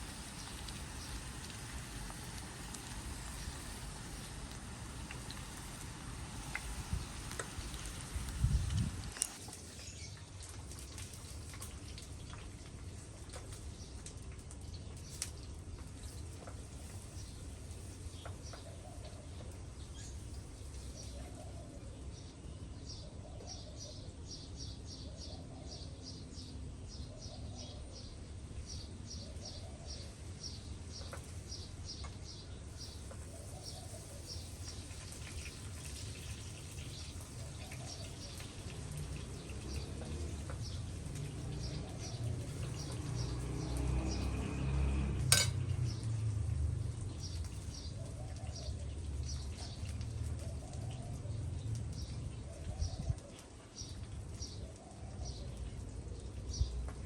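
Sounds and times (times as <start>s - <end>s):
cookware being handled: 45.3s - 45.6s
dishes clinking: 45.3s - 45.6s.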